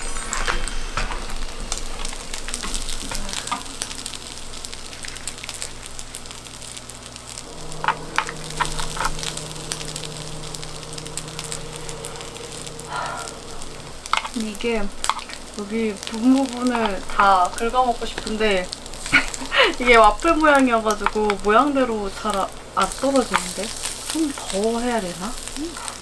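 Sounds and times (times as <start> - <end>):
fried rice sizzling in a pan: 0.0 - 26.0.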